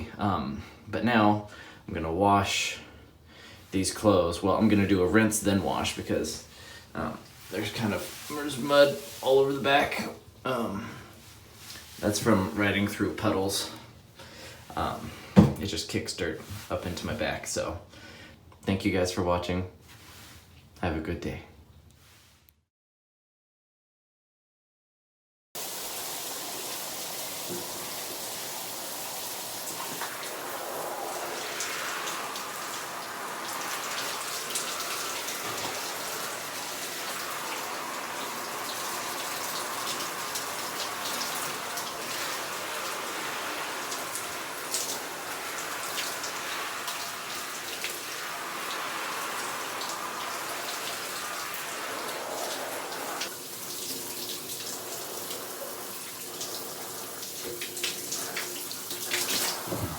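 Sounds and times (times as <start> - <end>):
tap water running and splashing: 3.9 - 10.2, 11.1 - 15.7, 25.6 - 59.9.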